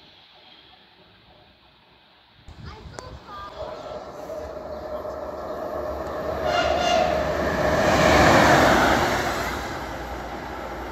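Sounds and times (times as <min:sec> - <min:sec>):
train wheels rushing on rails: 0:00.0 - 0:10.9
brief train whine: 0:03.4 - 0:10.9.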